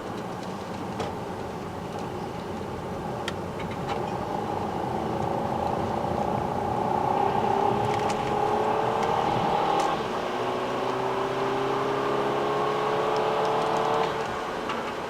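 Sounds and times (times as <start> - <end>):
car engine accelerating: 3.4 - 15.0.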